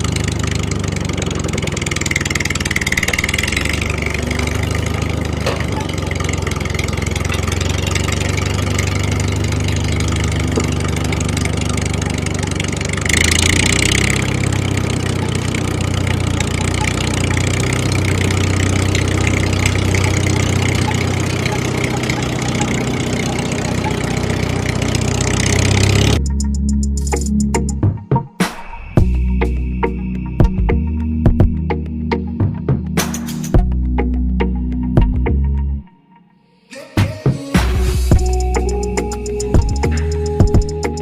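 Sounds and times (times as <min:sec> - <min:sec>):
small engine idling: 0:00.0 - 0:27.4, 0:38.1 - 0:41.0.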